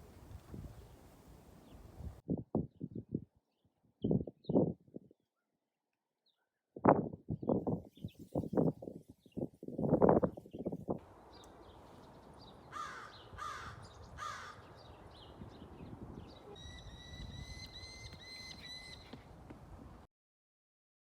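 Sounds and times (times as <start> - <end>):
harsh rasping bird calls: 12.6 - 15.0, 16.3 - 19.2
high-pitched whistled bird notes: 16.5 - 19.1.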